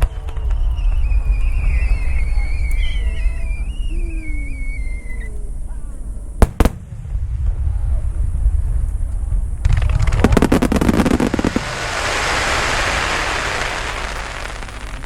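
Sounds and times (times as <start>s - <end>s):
sharp firework cracks: 0.0s - 1.1s, 6.4s - 7.7s, 9.6s - 15.0s
fireworks rumbling bursts: 0.0s - 5.0s, 6.3s - 15.0s
firework whistle gliding downward: 0.0s - 5.4s, 10.0s - 15.0s.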